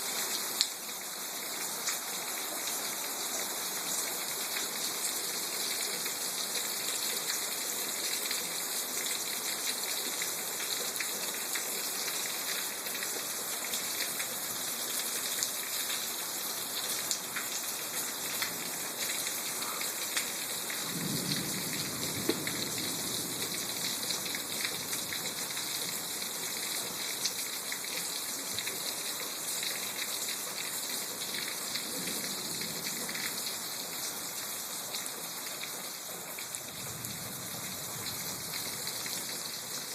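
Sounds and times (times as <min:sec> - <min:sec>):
steady rain falling: 0:00.0 - 0:39.9
thunder rumbling: 0:20.8 - 0:24.0.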